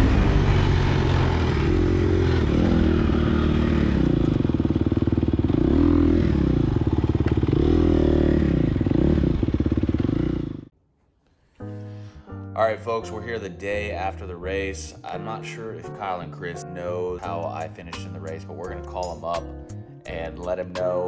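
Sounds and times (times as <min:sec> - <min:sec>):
dirt bike engine revving: 0:00.0 - 0:10.7.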